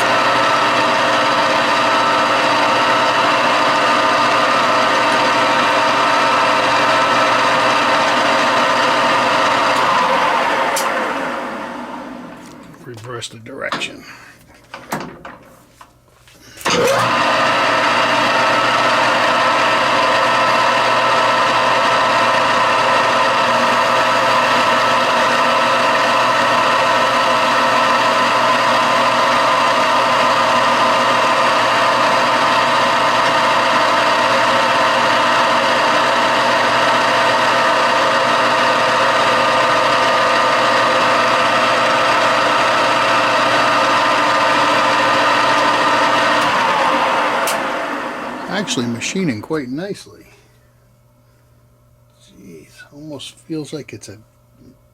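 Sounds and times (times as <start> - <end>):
metal lathe whining: 0.0 - 12.6, 16.6 - 49.4.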